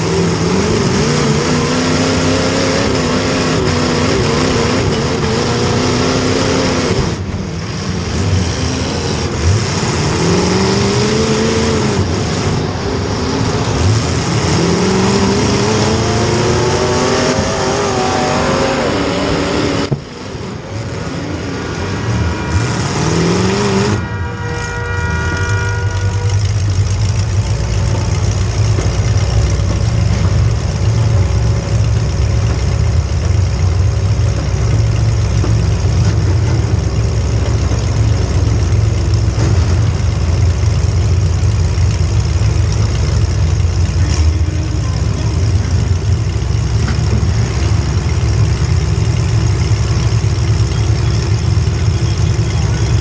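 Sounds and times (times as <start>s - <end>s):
car engine idling: 22.2s - 53.0s.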